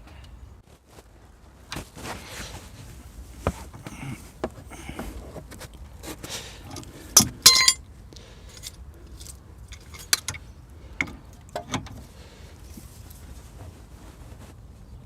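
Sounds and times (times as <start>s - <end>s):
ringing metallic clank: 7.4s - 7.8s.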